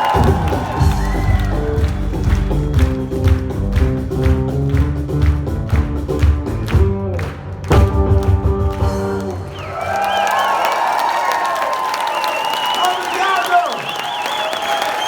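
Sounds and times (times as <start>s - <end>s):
acoustic band playing: 0.1s - 9.7s.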